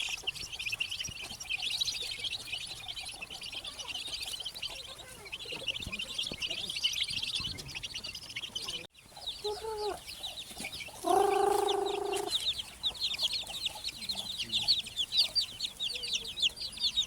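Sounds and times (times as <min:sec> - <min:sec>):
chicks peeping: 0:00.0 - 0:17.0
adult chicken call: 0:11.0 - 0:12.4.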